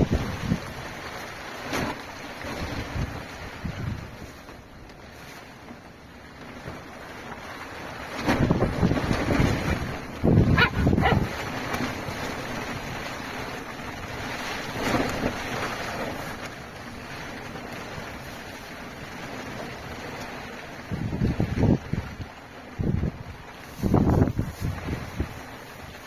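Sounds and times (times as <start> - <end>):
rushing wind or rain: 0.0 - 26.0
puppy barking: 10.5 - 11.4.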